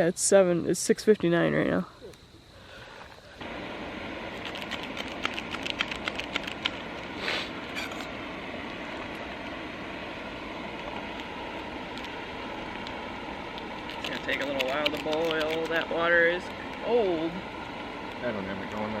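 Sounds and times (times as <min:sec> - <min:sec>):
camp stove burner hissing: 0:02.0 - 0:19.0.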